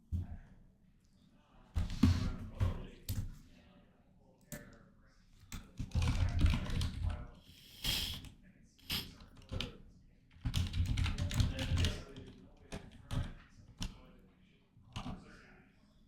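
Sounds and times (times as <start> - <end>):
computer keyboard typing: 5.5 - 7.2, 10.3 - 13.9.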